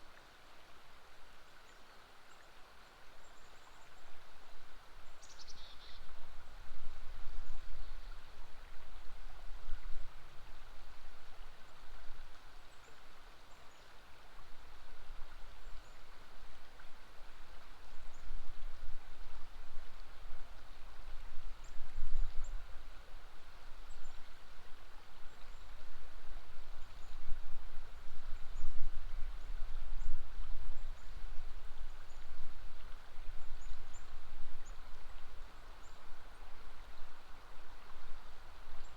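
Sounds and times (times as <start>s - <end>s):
river water flowing: 0.0s - 38.9s
faint bird chirps: 5.2s - 6.1s.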